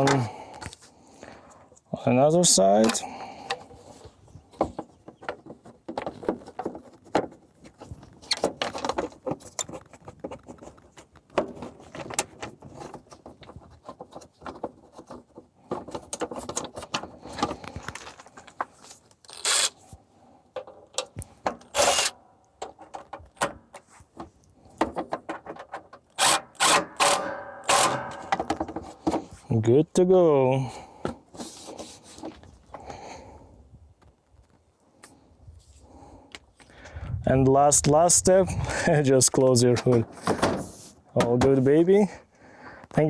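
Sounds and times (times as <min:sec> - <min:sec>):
clicks and knocks of fitting plastic: 0:22.5 - 0:26.2, 0:27.9 - 0:29.4.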